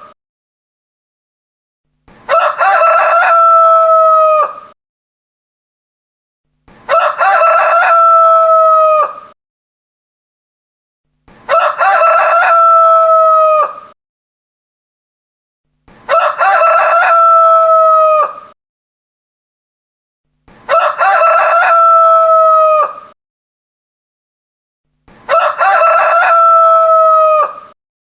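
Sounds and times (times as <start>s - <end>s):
rooster crowing: 2.3s - 4.8s, 6.9s - 9.4s, 11.5s - 14.0s, 16.1s - 18.6s, 20.7s - 23.2s, 25.3s - 27.8s.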